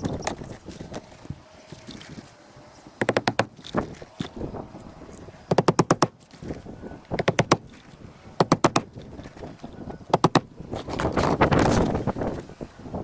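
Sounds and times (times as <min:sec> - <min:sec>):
rustling scrape: 0:00.0 - 0:05.5, 0:10.6 - 0:12.8
hammer striking roofing nails: 0:03.0 - 0:04.3, 0:05.5 - 0:06.2, 0:07.1 - 0:07.8, 0:08.4 - 0:09.4, 0:10.1 - 0:11.1.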